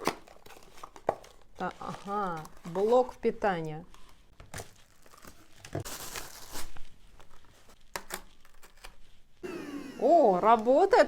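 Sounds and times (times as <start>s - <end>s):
packaging crinkling and tearing: 0.0s - 3.2s, 4.0s - 9.2s.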